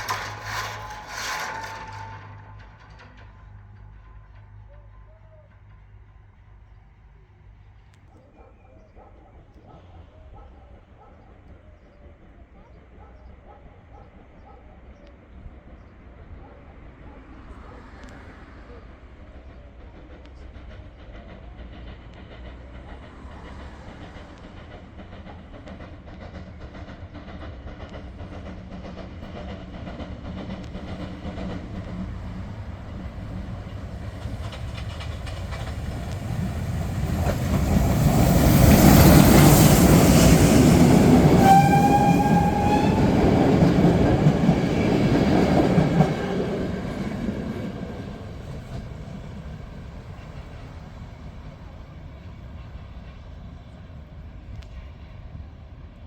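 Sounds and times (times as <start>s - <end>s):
wheels clacking over rail joints: 0.0s - 6.0s, 17.2s - 52.8s
steam locomotive passing: 0.0s - 8.2s, 9.0s - 56.0s.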